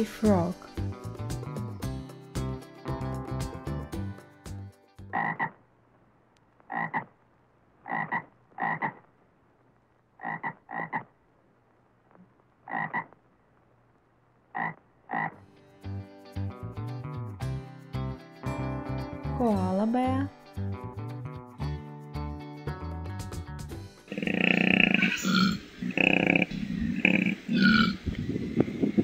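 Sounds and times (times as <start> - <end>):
children's music: 0.0 - 5.0, 15.8 - 24.2
tree frog croaking: 5.1 - 5.7, 6.6 - 7.2, 7.8 - 9.1, 10.2 - 11.2, 12.1 - 13.2, 14.5 - 15.4, 24.1 - 28.2
faint steady hum: 5.3 - 15.4.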